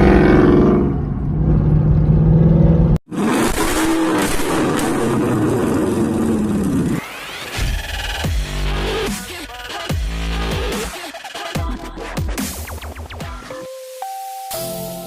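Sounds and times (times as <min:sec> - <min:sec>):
loud car engine revving: 0:01.5 - 0:07.2.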